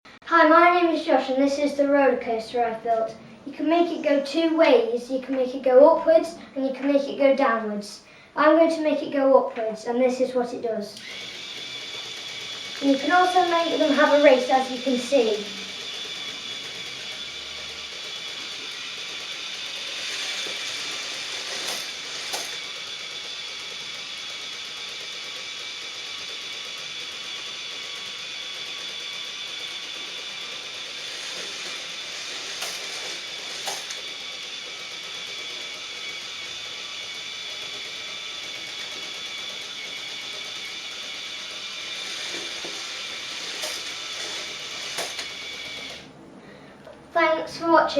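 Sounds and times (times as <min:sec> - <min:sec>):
small electric motor whining: 0:10.9 - 0:46.2.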